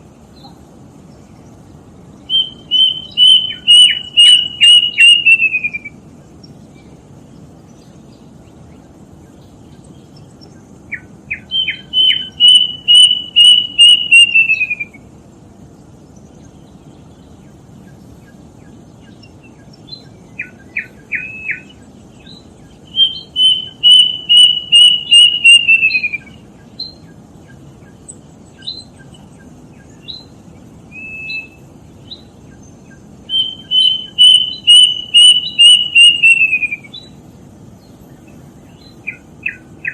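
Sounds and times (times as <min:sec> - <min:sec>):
faint steady hiss: 0:00.0 - 0:39.9
cuckoo singing whistled notes: 0:02.3 - 0:06.0, 0:10.9 - 0:15.1, 0:19.9 - 0:27.0, 0:30.9 - 0:32.3, 0:32.9 - 0:37.2, 0:38.7 - 0:39.9.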